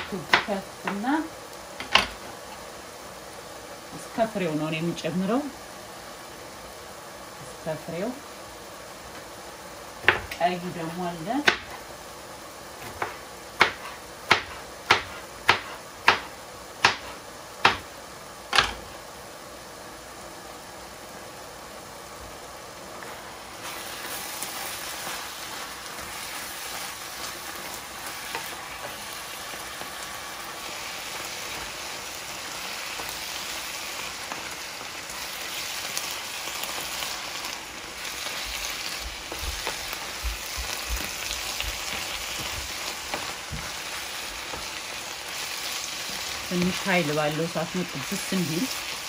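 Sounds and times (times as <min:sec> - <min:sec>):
vegetables sizzling in a pan: 0:00.0 - 0:49.0
spatula tapping and scraping: 0:38.5 - 0:43.8.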